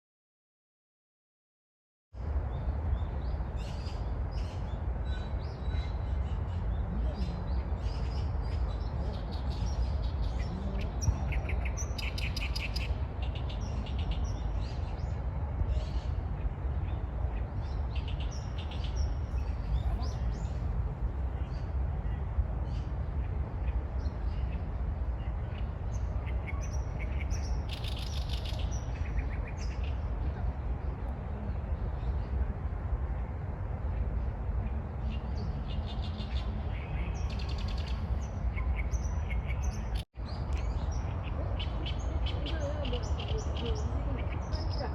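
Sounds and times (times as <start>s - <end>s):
steady low rumble: 3.9s - 44.9s
small birds chirping: 5.2s - 15.2s, 23.6s - 30.0s, 35.0s - 44.9s.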